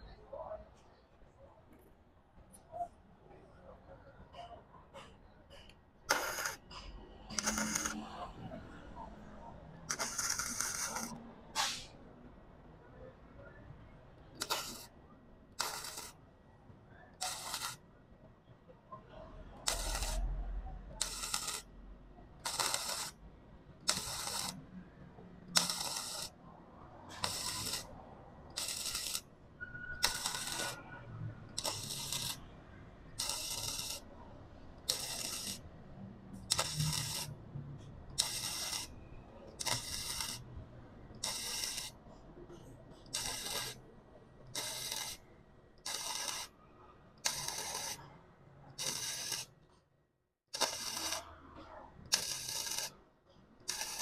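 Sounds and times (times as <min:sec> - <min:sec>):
welding arc on steel: 0:06.1 - 0:08.6, 0:09.9 - 0:11.9, 0:14.3 - 0:14.9, 0:15.6 - 0:16.2, 0:17.2 - 0:17.8, 0:19.4 - 0:21.7, 0:22.4 - 0:23.2, 0:23.8 - 0:24.7, 0:25.4 - 0:26.4, 0:27.1 - 0:32.5, 0:33.1 - 0:34.2, 0:34.8 - 0:35.7, 0:36.4 - 0:37.4, 0:38.1 - 0:40.5, 0:41.1 - 0:42.0, 0:43.0 - 0:43.8, 0:44.5 - 0:45.2, 0:45.8 - 0:46.6, 0:47.2 - 0:48.0, 0:48.7 - 0:49.6, 0:50.6 - 0:51.5, 0:52.1 - 0:53.0, 0:53.7 - 0:54.0.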